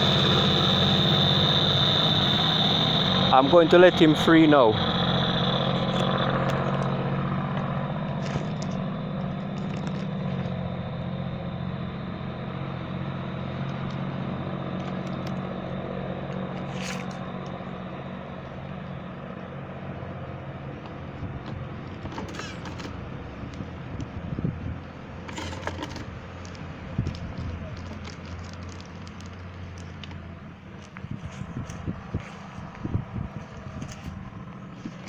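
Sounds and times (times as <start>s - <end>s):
engine idling hum: 0.0s - 35.0s
faint clicks and scrapes: 25.3s - 30.2s.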